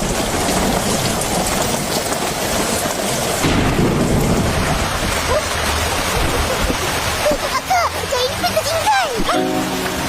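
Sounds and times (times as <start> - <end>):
thunder rumbling: 0.0 - 7.5
heavy rain: 0.0 - 10.0
wind: 0.0 - 10.0.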